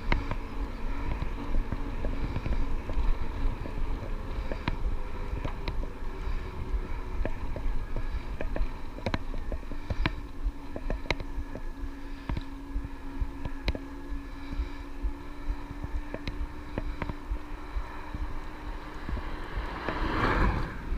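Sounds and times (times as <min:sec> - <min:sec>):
steady electric hum: 0:00.0 - 0:20.9
sharp clicks and ticks: 0:01.0 - 0:05.9, 0:07.2 - 0:12.5, 0:13.4 - 0:13.9, 0:15.5 - 0:20.2
tyre rumble and wind: 0:15.0 - 0:20.9.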